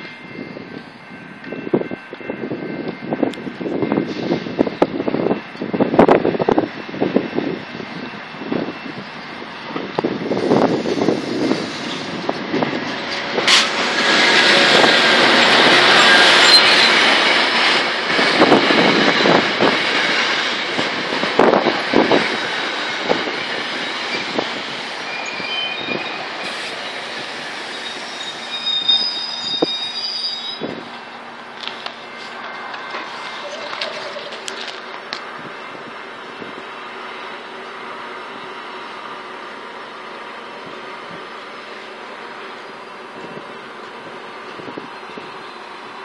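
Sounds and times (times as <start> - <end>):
train rolling rumble: 0.0 - 46.0
wheel and brake squeal: 15.7 - 17.6, 22.2 - 31.2, 32.0 - 34.4.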